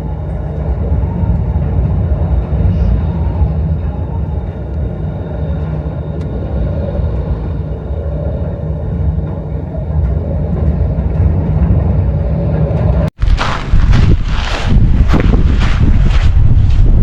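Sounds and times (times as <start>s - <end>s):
faint wavering whistle: 0.0s - 12.8s
strong wind buffeting microphone: 0.0s - 17.0s.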